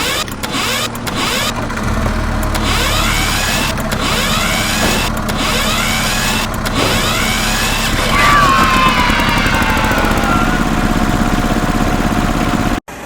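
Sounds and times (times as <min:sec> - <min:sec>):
motor running steadily: 0:00.0 - 0:12.8
high falling whooshing sweeps: 0:06.8 - 0:12.3.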